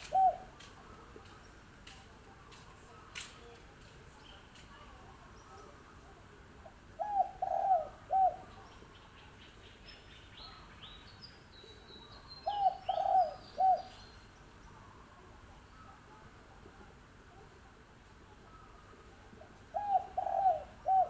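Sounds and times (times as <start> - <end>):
dove cooing: 0.0 - 0.8, 6.6 - 8.9, 12.4 - 14.0, 18.4 - 21.0.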